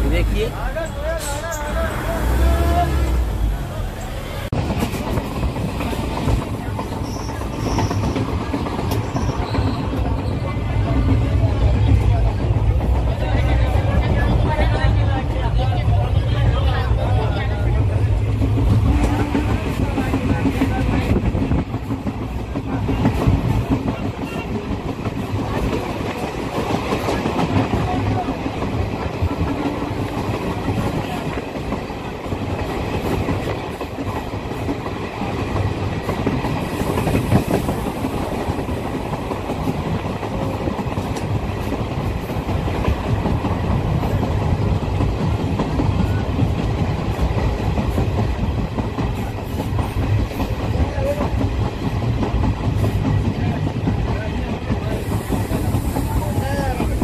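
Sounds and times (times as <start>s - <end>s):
train wheels clattering over rails: 4.5s - 15.9s, 17.0s - 57.0s
rushing air: 35.3s - 46.0s.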